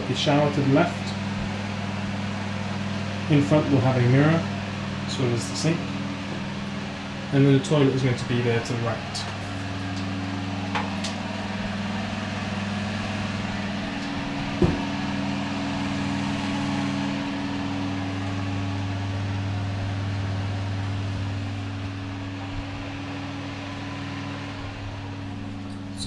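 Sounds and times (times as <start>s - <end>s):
extractor fan humming: 0.0s - 26.0s
knock: 14.6s - 14.9s.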